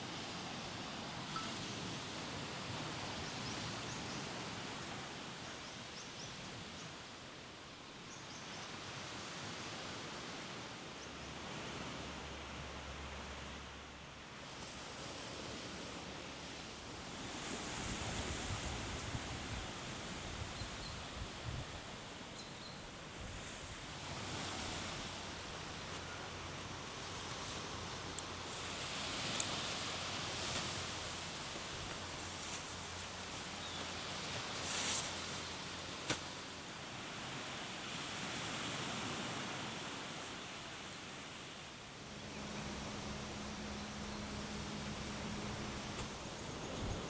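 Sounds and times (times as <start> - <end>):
sea surf washing on beach: 14.3 - 47.0
breeze: 20.6 - 47.0.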